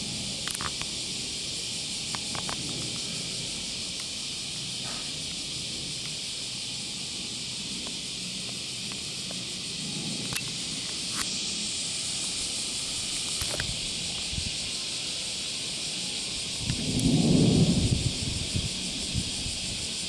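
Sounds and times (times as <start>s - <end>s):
high-pitched outdoor hiss: 0.0s - 20.0s
sharp clicks: 0.4s - 1.2s, 2.0s - 3.1s, 10.2s - 11.3s, 13.1s - 14.2s
fighter jet rumble: 16.5s - 20.0s.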